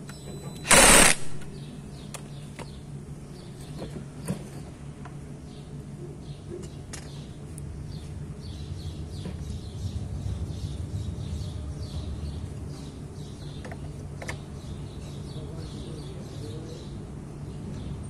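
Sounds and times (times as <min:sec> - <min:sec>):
birds chirping: 0:00.0 - 0:18.0
steady low rumble: 0:07.3 - 0:15.6.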